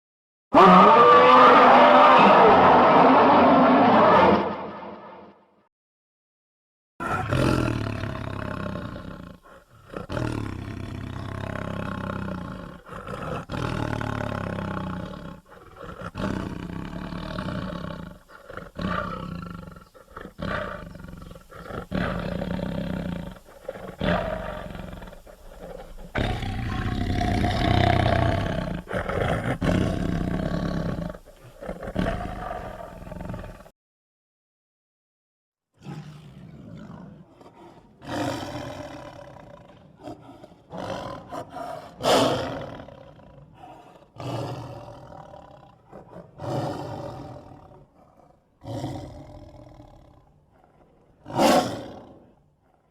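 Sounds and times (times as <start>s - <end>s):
character voice roaring and growling: 0.5s - 5.1s.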